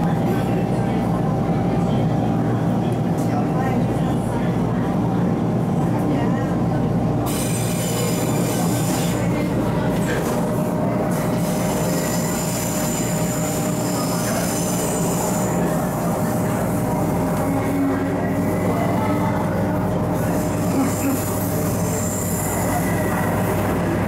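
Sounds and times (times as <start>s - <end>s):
train wheels rolling on rail: 2.4s - 24.0s.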